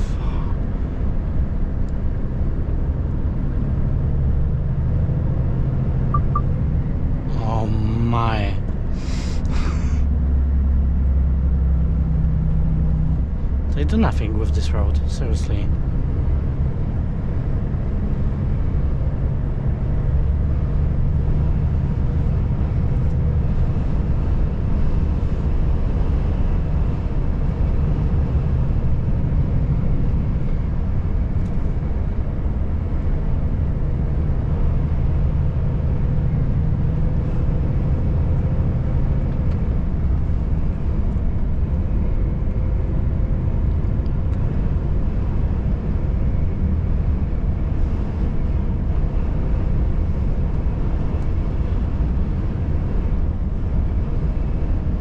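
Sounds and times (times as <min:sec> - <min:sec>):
truck engine and tyres droning: 0:00.0 - 0:55.0
faint hum: 0:06.1 - 0:10.0.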